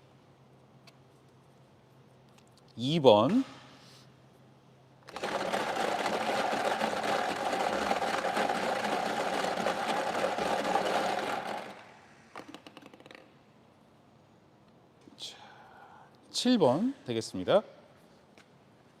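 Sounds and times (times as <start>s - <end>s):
lottery balls rattling in machine: 5.1s - 11.9s.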